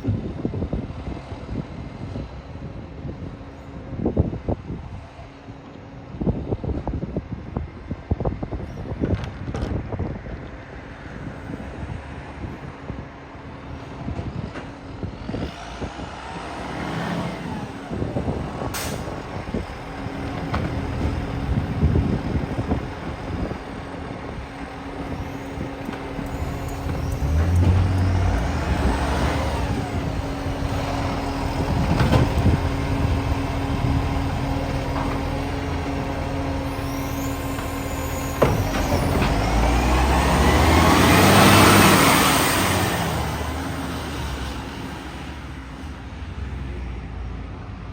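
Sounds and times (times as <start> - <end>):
garbage truck engine: 13.2 - 46.5.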